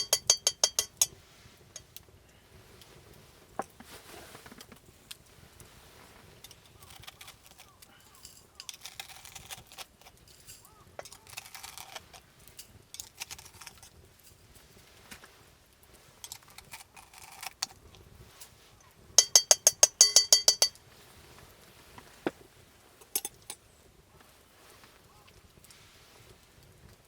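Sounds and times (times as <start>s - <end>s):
sharp metallic clinks: 0.0s - 1.2s, 19.2s - 20.8s.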